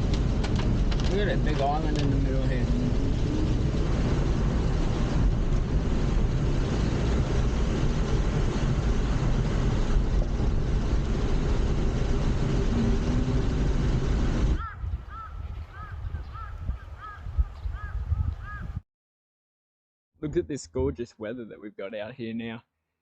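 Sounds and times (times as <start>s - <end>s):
car engine and road rumble: 0.0s - 15.8s.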